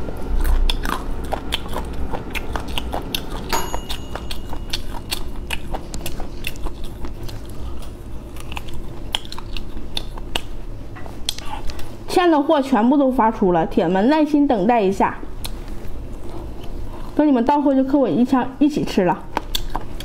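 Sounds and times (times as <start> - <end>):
person chewing crunchy chicken: 0.0 - 10.6, 19.4 - 20.0.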